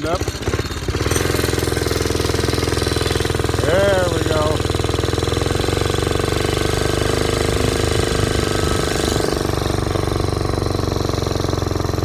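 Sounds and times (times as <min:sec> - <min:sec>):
small motorized bicycle engine: 0:00.0 - 0:12.0.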